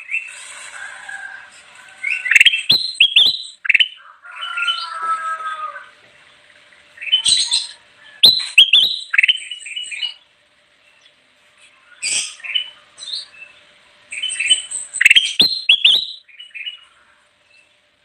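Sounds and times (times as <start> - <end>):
bulbul singing: 2.0 - 4.0, 6.8 - 11.2, 12.0 - 17.7.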